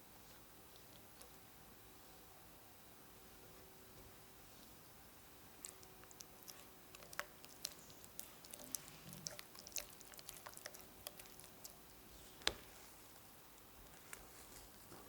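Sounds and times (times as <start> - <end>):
food preparation clicks and taps: 12.4 - 12.8.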